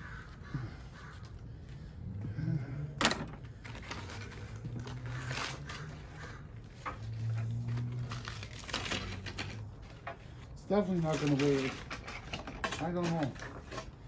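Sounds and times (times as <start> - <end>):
scraping and rustling of scrap metal: 3.0 - 14.0.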